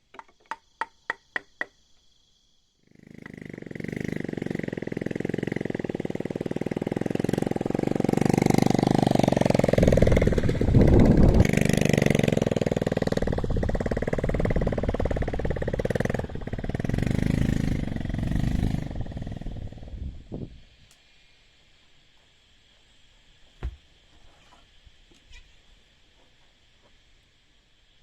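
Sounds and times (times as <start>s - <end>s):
engine running with fast pulsing: 2.8s - 20.7s.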